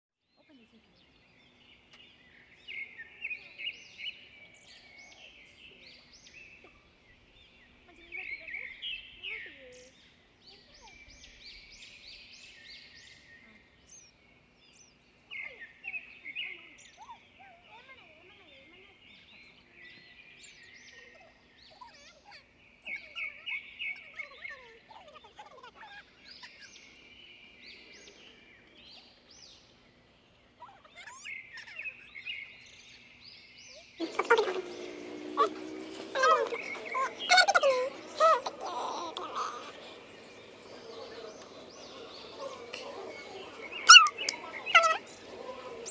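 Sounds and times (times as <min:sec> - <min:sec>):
pet bird chirping: 0:33.7 - 0:45.9.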